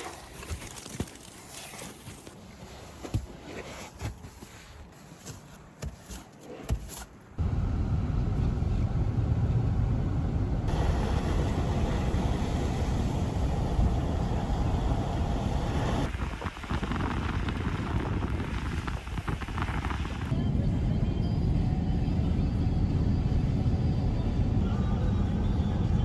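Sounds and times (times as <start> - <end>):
car road and engine rumble: 7.2 - 26.0.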